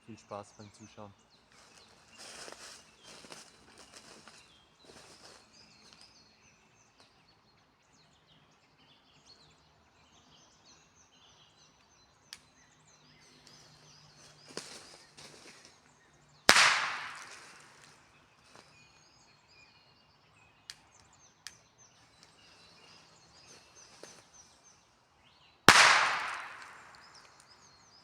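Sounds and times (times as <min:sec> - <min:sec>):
birds chirping faintly: 0:00.0 - 0:28.0
firecracker bang: 0:16.5 - 0:17.7, 0:25.7 - 0:27.2.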